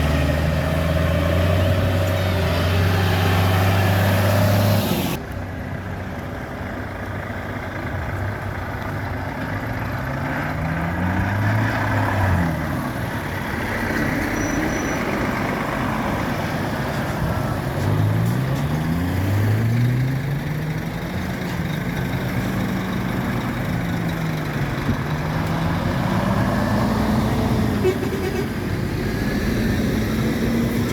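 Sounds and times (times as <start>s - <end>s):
tractor engines driving past: 0.0s - 30.9s.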